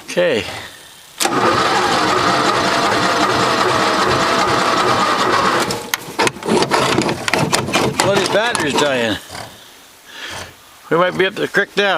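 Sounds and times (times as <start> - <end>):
electric starter cranking engine: 1.2 - 8.8.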